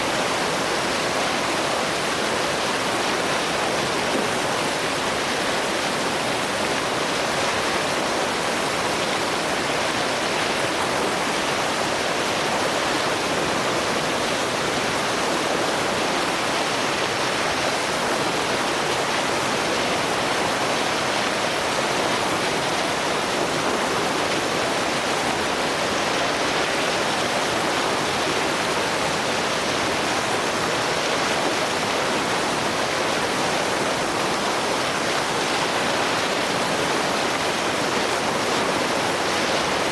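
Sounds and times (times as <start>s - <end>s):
white water rushing over rapids: 0.0s - 39.9s.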